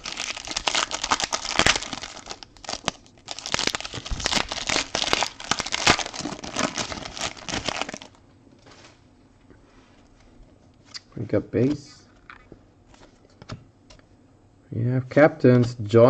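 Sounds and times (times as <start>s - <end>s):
wrapper tearing and crinkling: 0.0s - 8.2s.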